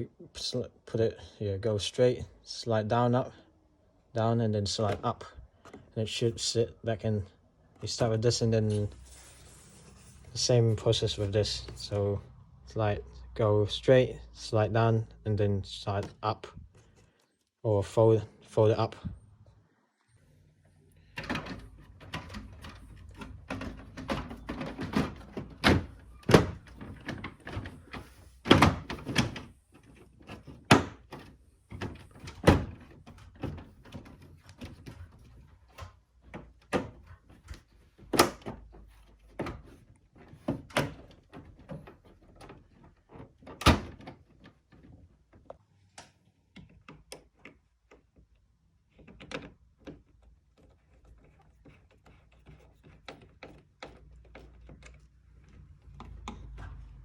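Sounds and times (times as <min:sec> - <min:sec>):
plastic parts knocking and clicking: 0:21.2 - 0:57.0.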